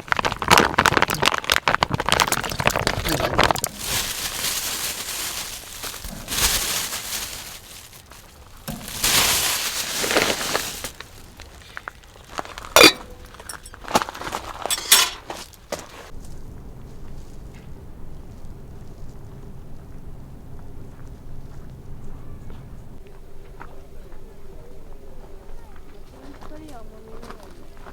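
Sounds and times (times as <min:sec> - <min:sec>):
tableware clinking: 0:12.8 - 0:13.8, 0:14.7 - 0:15.3.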